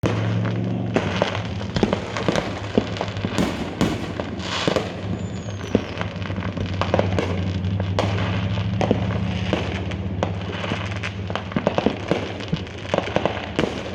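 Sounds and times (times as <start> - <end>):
crackling hiss: 0.0 - 13.9
fireworks popping and banging: 0.0 - 13.9
falling whistle: 4.9 - 6.2.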